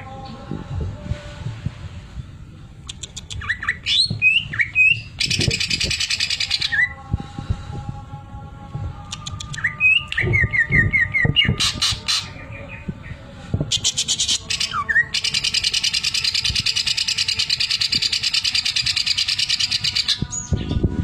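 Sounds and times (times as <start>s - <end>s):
bird singing clicks and whistles: 2.8s - 6.1s, 9.1s - 10.8s.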